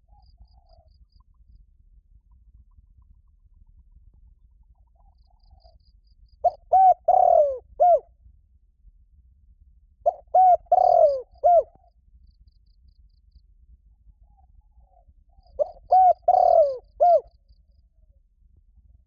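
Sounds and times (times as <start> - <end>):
dove cooing: 6.4 - 8.0, 10.1 - 11.9, 14.9 - 17.3.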